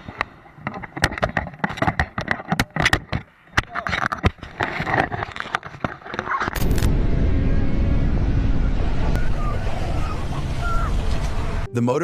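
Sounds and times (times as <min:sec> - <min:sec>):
clicks and crackles: 0:00.0 - 0:06.9.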